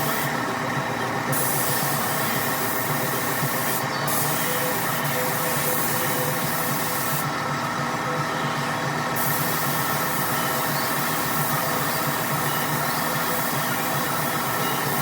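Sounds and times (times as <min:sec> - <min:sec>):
steady machine hum: 0:00.0 - 0:15.0
paint spray gun hissing: 0:01.3 - 0:07.3, 0:09.1 - 0:15.0.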